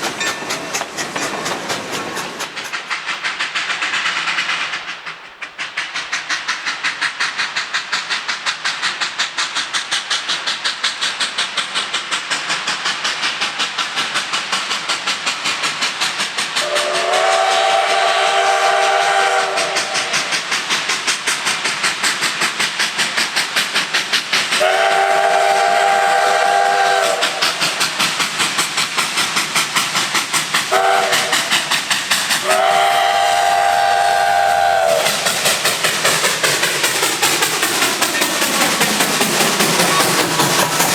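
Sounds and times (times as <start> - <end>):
steam locomotive exhaust beating: 0.0 - 40.9
steam whistle chord: 16.6 - 20.3, 24.6 - 27.4, 30.7 - 31.5.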